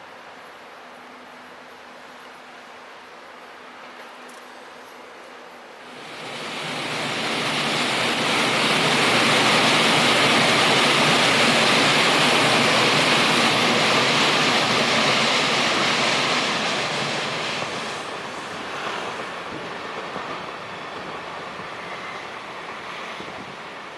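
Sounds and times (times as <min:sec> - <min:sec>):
train passing at speed: 0:05.3 - 0:23.9.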